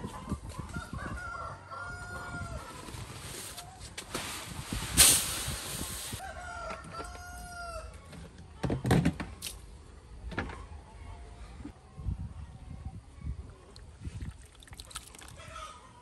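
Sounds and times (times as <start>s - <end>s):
rooster crowing: 0.8s - 2.8s, 6.2s - 8.0s
burst of hiss: 4.8s - 6.2s.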